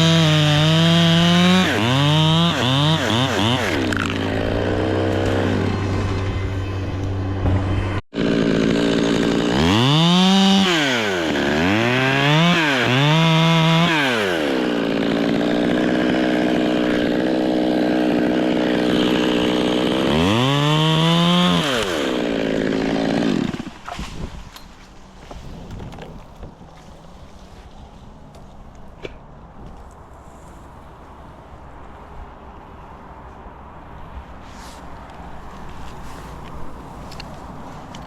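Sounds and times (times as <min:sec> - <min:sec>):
chainsaw revving: 0:00.0 - 0:06.3, 0:08.1 - 0:23.9.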